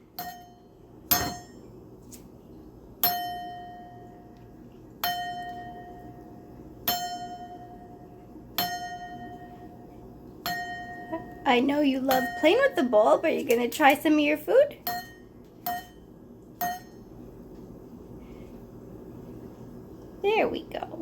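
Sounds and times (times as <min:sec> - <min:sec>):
bowl clanging with ringing tone: 0:00.1 - 0:01.7, 0:03.0 - 0:04.4, 0:05.0 - 0:13.0, 0:14.8 - 0:17.1.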